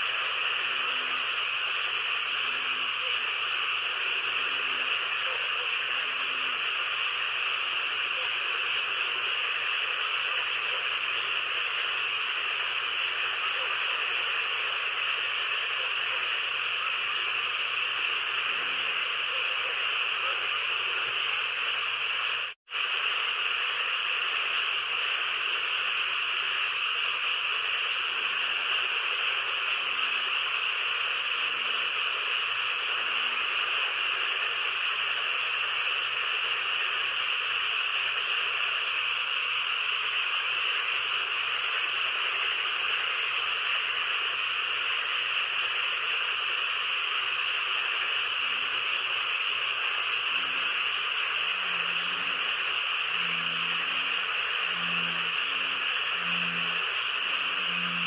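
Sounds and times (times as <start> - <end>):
steady high-pitched hiss: 0.0 - 58.0.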